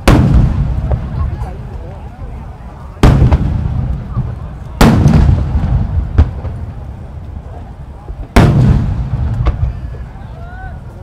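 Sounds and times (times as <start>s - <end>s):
firework shell booming: 0.0s - 1.6s, 3.0s - 6.8s, 8.2s - 10.1s
firework crack: 0.0s - 11.0s.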